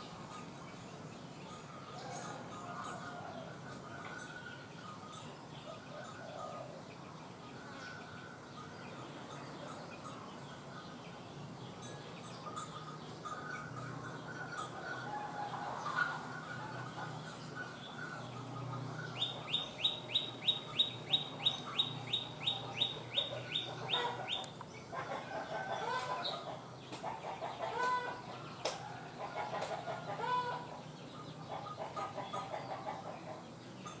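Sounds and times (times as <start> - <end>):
bird calling: 12.5 - 26.6.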